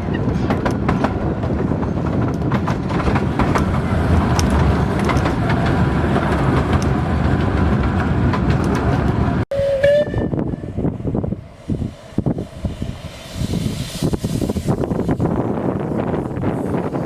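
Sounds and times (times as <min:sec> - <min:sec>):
wheels clicking over rail joints: 0:00.0 - 0:10.0
train rumble: 0:00.0 - 0:17.0.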